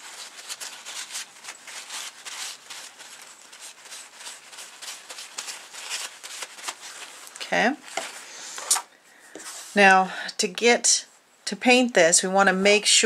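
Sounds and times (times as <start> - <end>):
paper towel rustling: 0.0 - 9.8.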